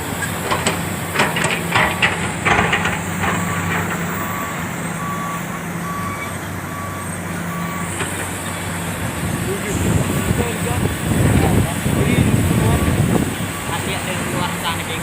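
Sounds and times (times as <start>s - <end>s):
diesel engine running: 0.0s - 15.0s
knocks and clatter: 0.2s - 4.4s
backup alarm beeping: 2.5s - 8.0s.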